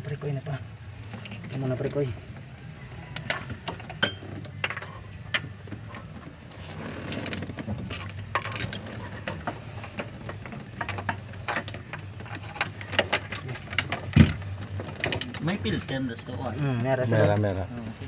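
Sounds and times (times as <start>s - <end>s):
metal tools clinking: 3.2s - 5.0s.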